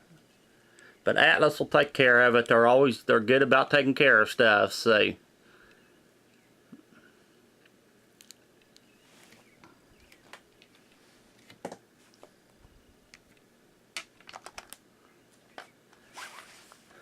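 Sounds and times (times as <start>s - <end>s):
small hard objects clicking: 14.0s - 14.8s.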